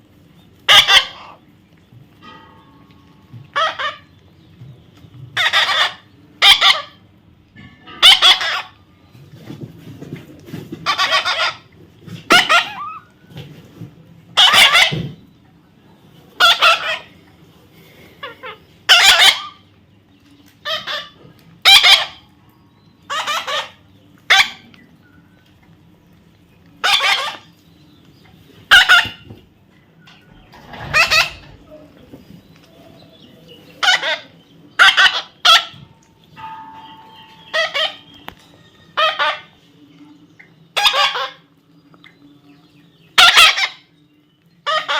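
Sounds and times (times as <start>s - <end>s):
parrot squawking: 0.7s - 1.4s, 3.6s - 4.1s, 5.4s - 7.0s, 8.0s - 8.8s, 10.8s - 11.6s, 12.3s - 13.1s, 14.4s - 15.0s, 16.4s - 17.1s, 18.2s - 19.6s, 20.6s - 22.3s, 23.1s - 24.6s, 26.8s - 27.5s, 28.7s - 29.2s, 30.6s - 31.7s, 33.8s - 35.8s, 37.4s - 38.1s, 39.0s - 39.5s, 40.8s - 41.4s, 43.2s - 43.9s, 44.6s - 44.9s.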